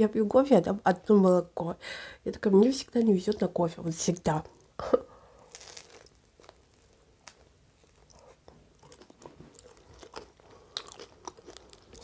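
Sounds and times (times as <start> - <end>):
person chewing crunchy food: 5.4 - 12.0.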